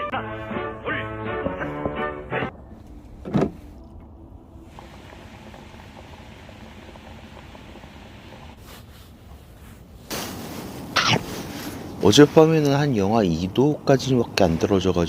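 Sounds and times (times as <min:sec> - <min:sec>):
low background rumble: 0:00.7 - 0:15.0
dull thump: 0:01.4 - 0:04.1.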